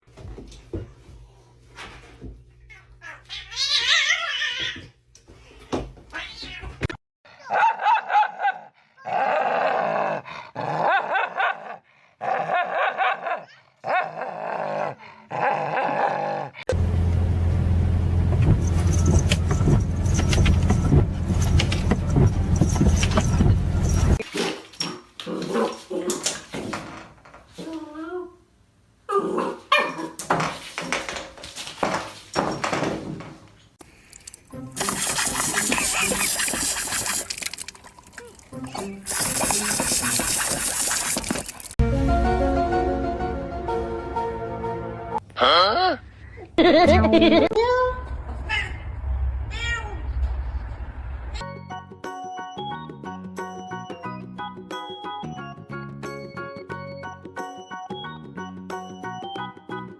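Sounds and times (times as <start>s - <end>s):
dog barking and yipping: 7.4s - 8.7s, 29.4s - 30.2s.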